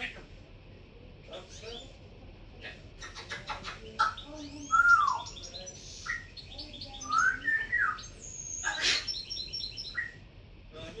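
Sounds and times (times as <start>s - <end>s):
cockatiel whistling: 7.0s - 10.2s.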